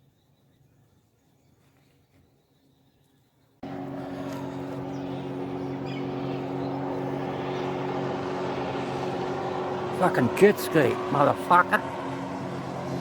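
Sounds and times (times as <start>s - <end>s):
jet ski engine humming: 3.6s - 13.0s.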